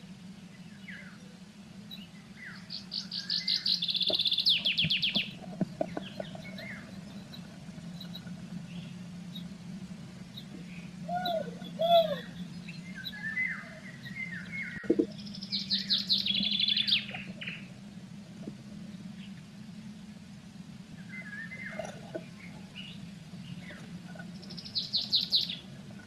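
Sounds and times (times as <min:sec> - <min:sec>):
songbirds chirping: 0:00.0 - 0:26.0
steady low hum: 0:00.0 - 0:26.0.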